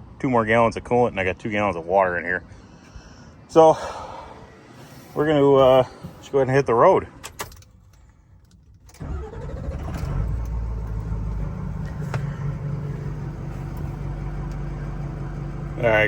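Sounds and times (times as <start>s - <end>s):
diesel engine idling: 2.2s - 7.2s, 9.0s - 16.0s
diesel truck engine cranking: 3.9s - 16.0s.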